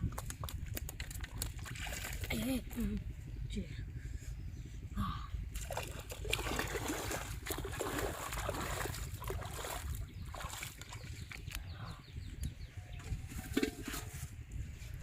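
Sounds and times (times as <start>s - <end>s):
water splashing and trickling: 0.0s - 2.9s, 5.5s - 11.6s
steady low rumble: 0.0s - 15.0s.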